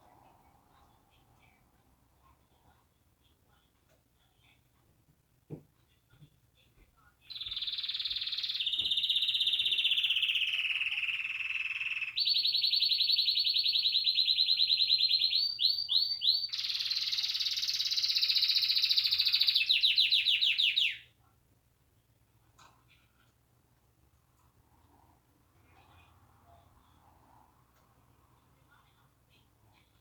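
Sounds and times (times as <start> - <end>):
canary singing trills: 7.3 - 21.1.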